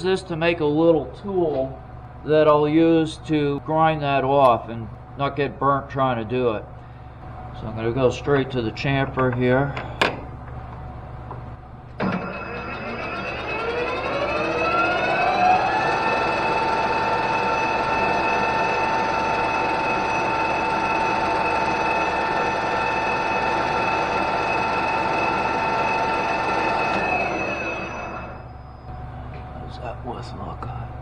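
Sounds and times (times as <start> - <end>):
metal lathe whining: 12.0 - 28.9.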